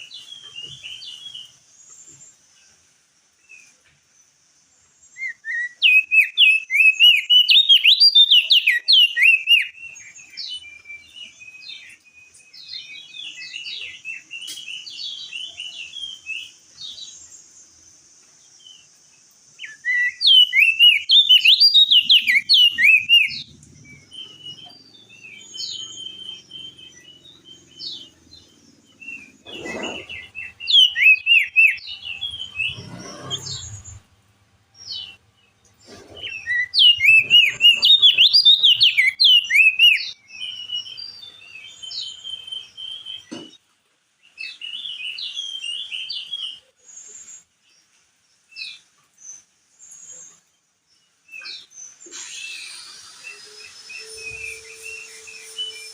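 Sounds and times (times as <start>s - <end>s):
steady high hiss: 0.0s - 7.4s, 8.6s - 29.5s, 39.5s - 55.9s
bird chattering song: 5.1s - 17.6s, 19.6s - 34.1s, 34.8s - 43.6s
short bird calls: 19.6s - 34.1s, 35.9s - 41.0s.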